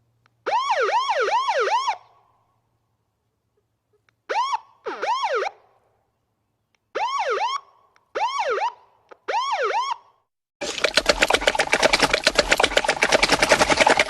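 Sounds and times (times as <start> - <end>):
cartoon siren whistle: 0.5 - 2.1.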